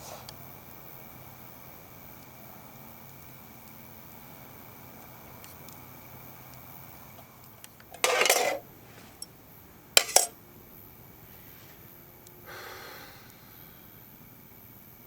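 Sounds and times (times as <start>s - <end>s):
cookware rustling scrape: 7.9s - 9.2s, 10.0s - 10.3s
metallic clinks: 10.0s - 10.3s.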